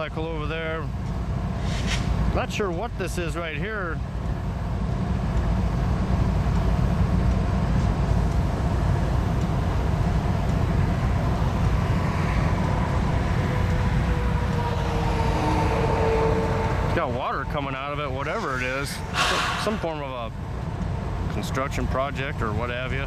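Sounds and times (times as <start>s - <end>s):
low engine rumble: 0.0s - 23.0s
faint tone: 16.5s - 20.4s.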